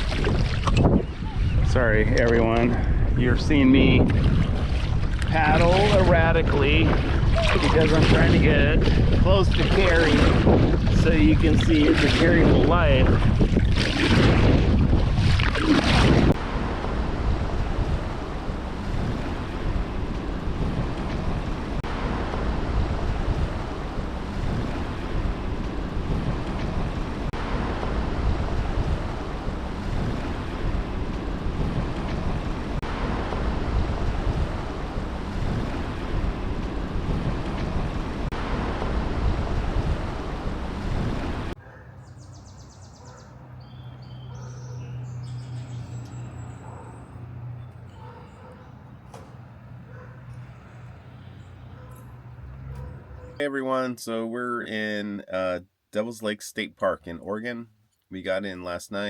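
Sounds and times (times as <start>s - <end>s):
rushing water and surf: 0.0s - 41.7s
wind buffeting microphone: 0.0s - 53.4s.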